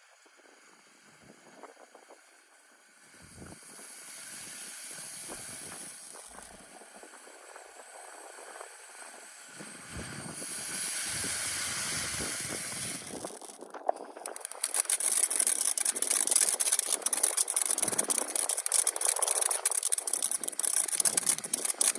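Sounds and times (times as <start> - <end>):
firework hissing: 3.0 - 21.9.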